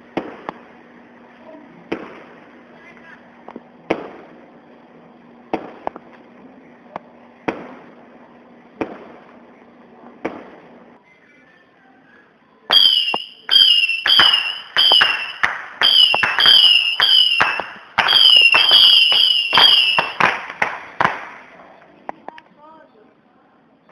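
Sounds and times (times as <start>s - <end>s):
firework bangs: 0.0s - 0.6s, 1.9s - 2.4s, 3.8s - 4.4s, 5.5s - 6.0s, 7.4s - 8.0s, 8.8s - 9.4s, 10.2s - 10.8s, 12.7s - 21.6s
whistling firework shots: 12.7s - 21.8s.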